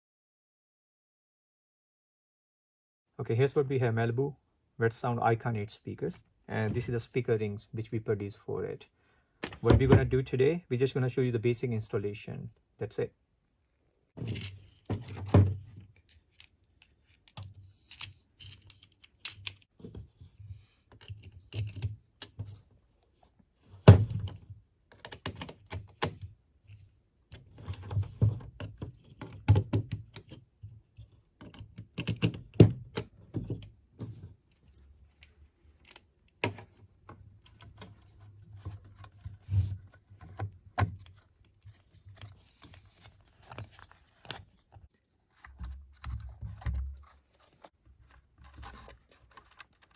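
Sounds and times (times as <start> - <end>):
plastic and metal parts clicking: 16.0 - 19.7, 48.1 - 49.9.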